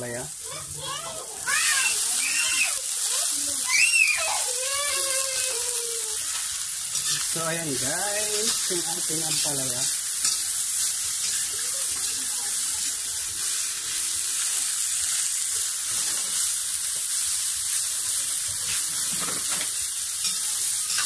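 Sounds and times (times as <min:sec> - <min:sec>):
food sizzling in a wok: 0:00.0 - 0:21.0
metal spoon scraping wok: 0:06.4 - 0:12.2, 0:15.9 - 0:16.6, 0:18.7 - 0:21.0.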